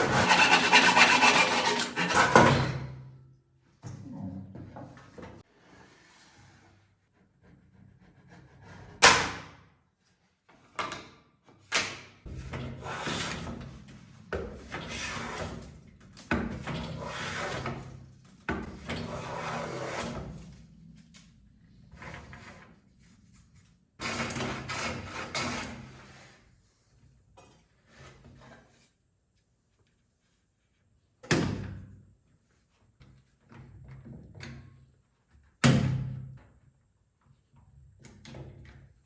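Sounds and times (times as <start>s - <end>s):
hand tool scraping wood: 0.0s - 2.6s, 14.8s - 15.6s, 16.9s - 17.9s.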